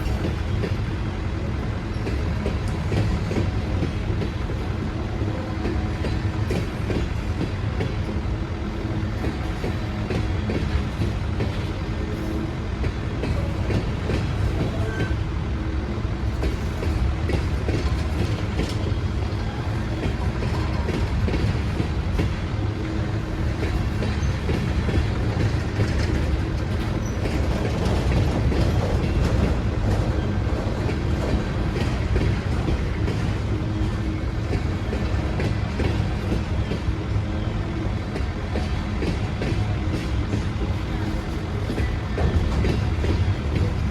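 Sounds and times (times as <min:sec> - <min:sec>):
train wheels rumbling on track: 0:00.0 - 0:43.9
wheels clacking over rail joints: 0:23.0 - 0:36.9.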